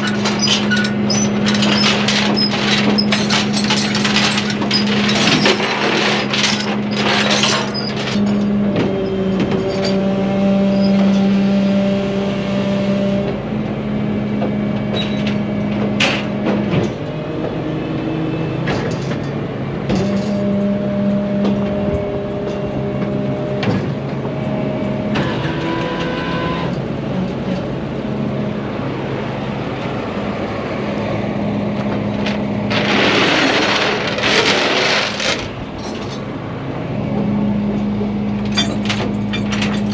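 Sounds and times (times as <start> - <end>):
truck engine running: 0.0 - 9.7, 27.7 - 39.9
clicks and knocks: 38.4 - 39.9.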